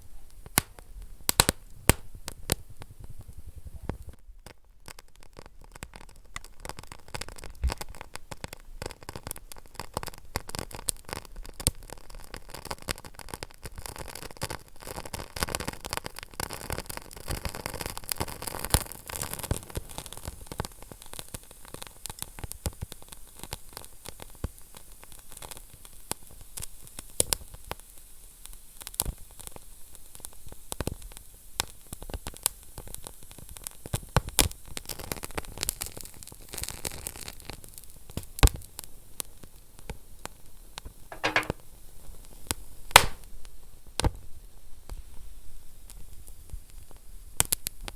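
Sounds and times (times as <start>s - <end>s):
wood fire crackling and popping: 0.3s - 14.2s, 43.0s - 43.2s.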